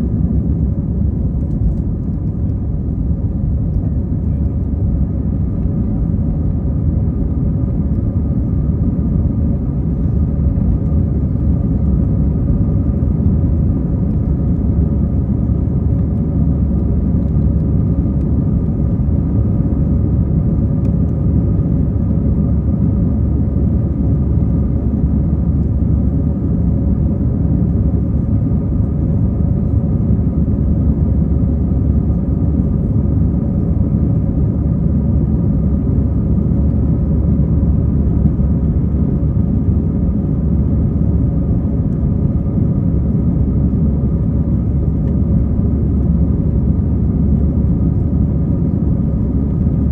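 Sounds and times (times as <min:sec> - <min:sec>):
jet engines rumbling at takeoff: 0:00.0 - 0:49.9
steady engine hum: 0:00.0 - 0:49.9.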